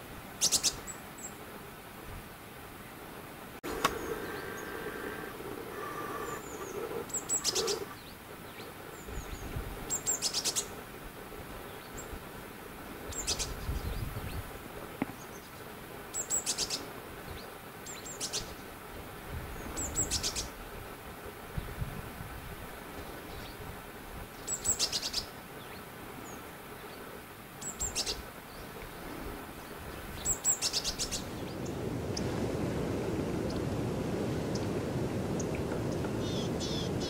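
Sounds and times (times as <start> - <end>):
songbirds chirping trills: 3.6 - 10.8.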